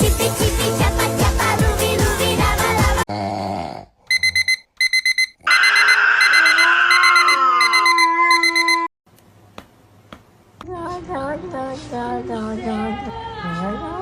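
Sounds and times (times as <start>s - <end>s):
electronic alarm beeping: 4.1s - 8.9s.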